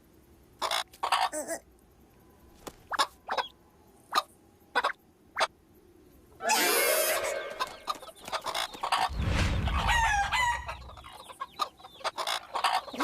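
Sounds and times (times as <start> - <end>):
chickens clucking: 0.6 - 1.6, 4.1 - 5.5, 6.4 - 13.0
low rumble: 9.1 - 11.2
rooster crowing: 9.7 - 11.0.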